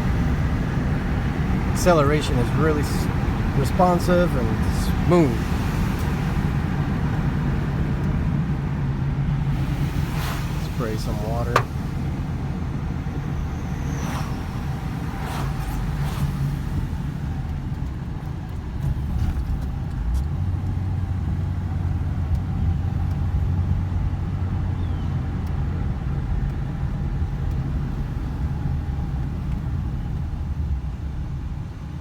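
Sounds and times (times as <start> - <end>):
car engine running: 0.0 - 31.9
road noise: 0.0 - 32.0
short swishes: 13.8 - 17.2.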